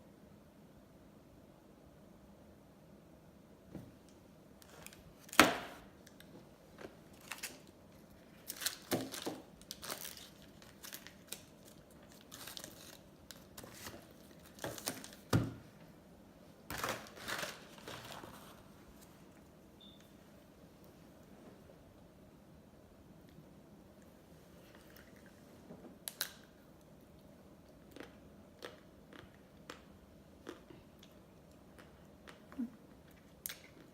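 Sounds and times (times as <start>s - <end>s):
plastic wrapper crinkling: 7.1s - 15.3s, 16.7s - 18.7s.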